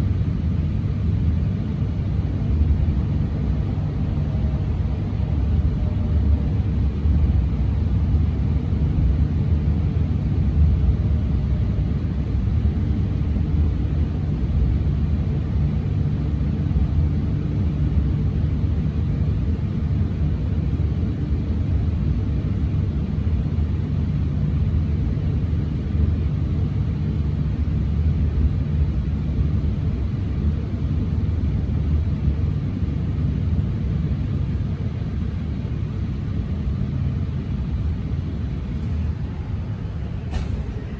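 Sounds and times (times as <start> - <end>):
train running low rumble: 0.0 - 40.9.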